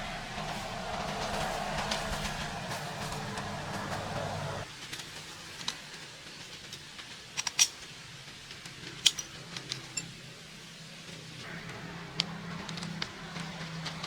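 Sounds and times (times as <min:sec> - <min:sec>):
steady low hum: 0:00.0 - 0:04.7.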